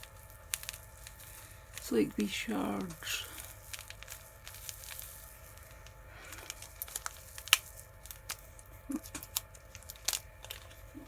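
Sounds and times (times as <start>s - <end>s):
plastic packet clicking and crinkling: 0.0s - 11.0s.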